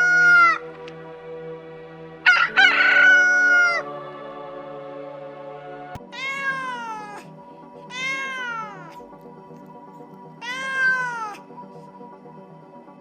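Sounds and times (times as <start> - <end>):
cat meowing: 0.0 - 0.6, 6.0 - 7.3, 7.9 - 9.0, 10.4 - 11.4
background music: 0.0 - 13.0.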